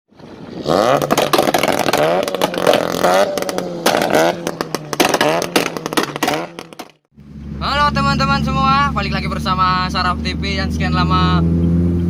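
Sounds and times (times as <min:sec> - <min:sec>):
exhaust crackling pops: 0:00.5 - 0:07.3
engine revving: 0:00.6 - 0:12.0.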